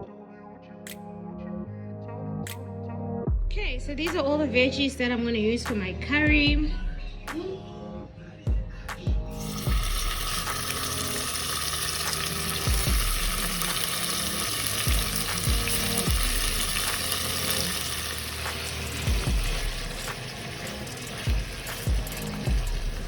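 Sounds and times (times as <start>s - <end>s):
vegetables sizzling in oil: 9.4s - 23.0s
low stirring thumps: 12.2s - 14.0s, 14.6s - 23.0s.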